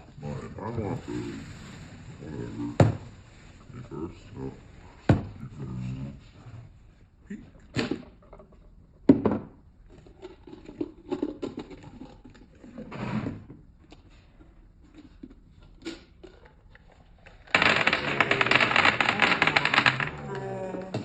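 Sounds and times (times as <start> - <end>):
clicks and rustles: 13.9 - 21.0
wrapping crinkling and cracking: 16.3 - 21.0.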